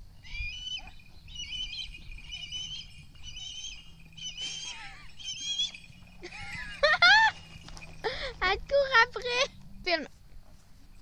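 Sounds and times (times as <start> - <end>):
bird chirping: 0.2 - 8.3.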